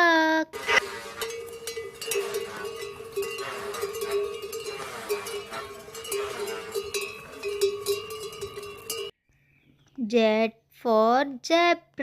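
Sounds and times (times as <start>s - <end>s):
animal bleats or grunts: 0.6s - 8.8s
bells clanking: 0.6s - 9.2s.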